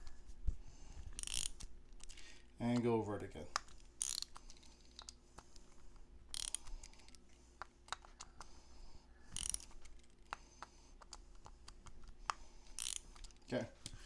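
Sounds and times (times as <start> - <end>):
torque tool ratcheting: 1.2 - 2.2, 4.0 - 5.1, 6.3 - 7.1, 9.3 - 9.9, 12.7 - 13.4.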